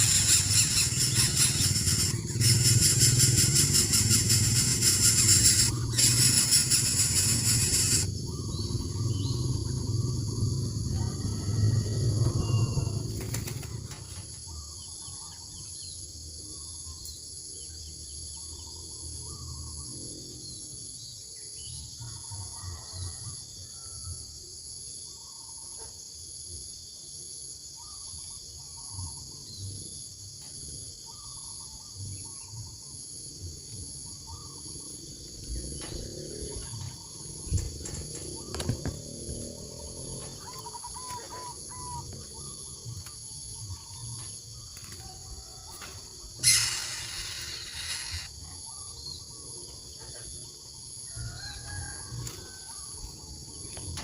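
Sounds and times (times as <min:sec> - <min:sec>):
high insect chorus: 0:00.0 - 0:54.0
short bird calls: 0:46.4 - 0:48.3.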